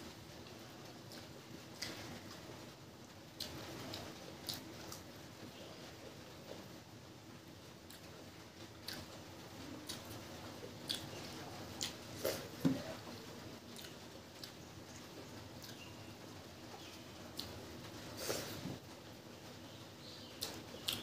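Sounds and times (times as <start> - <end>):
mouth chewing and lip-smacking: 3.4 - 5.1, 8.8 - 9.2, 10.8 - 12.5, 13.7 - 14.6, 17.3 - 17.6, 20.4 - 21.0.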